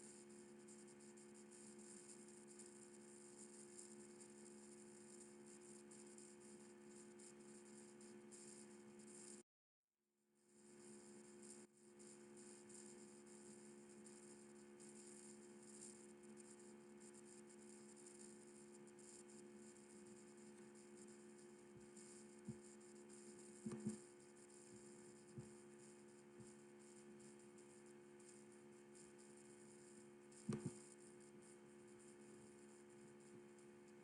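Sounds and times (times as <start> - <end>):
electrical hum and hiss: 29.6 - 31.2.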